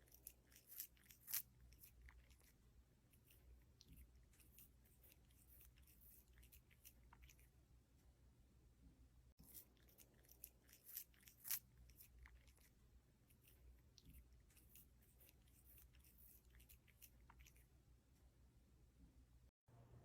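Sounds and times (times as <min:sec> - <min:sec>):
crisp crunching and clicking: 0:00.0 - 0:02.6, 0:09.4 - 0:17.6.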